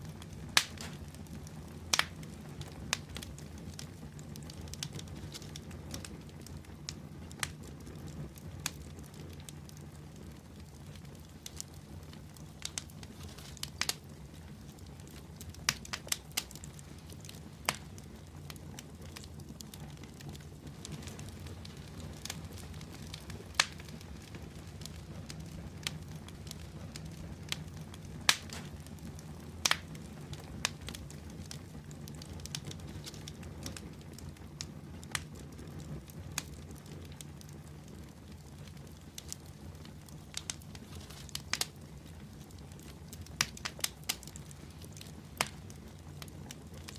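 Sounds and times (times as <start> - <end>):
fire crackling and popping: 0.0 - 46.9.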